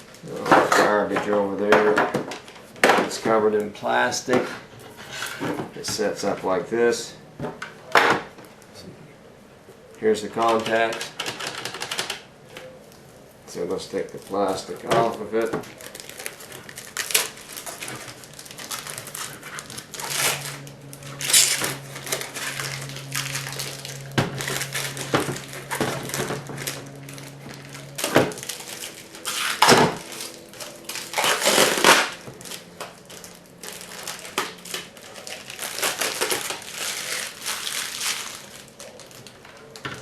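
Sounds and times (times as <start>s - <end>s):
plastic film peeling and crinkling: 12.8s - 40.0s.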